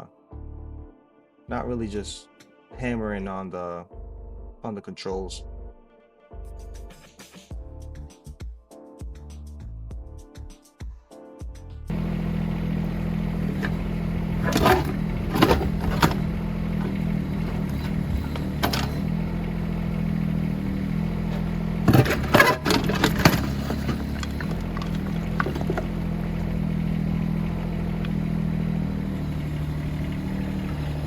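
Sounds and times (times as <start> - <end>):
excavator engine running: 11.9 - 31.0
bucket clanking against rocks: 12.9 - 19.1, 21.2 - 26.6.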